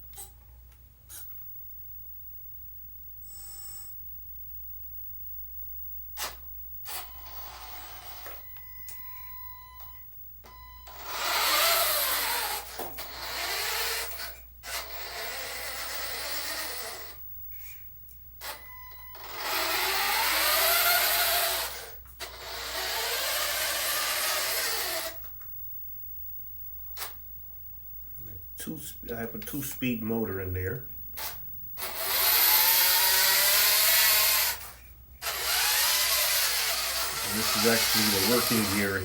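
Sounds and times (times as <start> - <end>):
toy truck electric motor whirring: 6.2 - 8.6, 10.8 - 25.4, 31.2 - 39.0.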